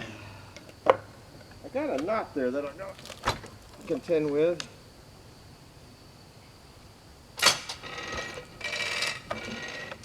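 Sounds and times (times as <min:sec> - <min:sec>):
metallic grating and ratcheting: 0:07.5 - 0:10.0.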